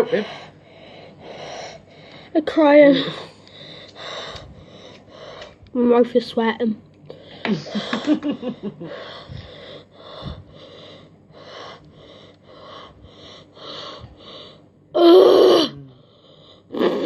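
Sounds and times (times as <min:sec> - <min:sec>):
person panting through the mouth: 0:08.8 - 0:14.6
person whimpering: 0:15.0 - 0:16.0.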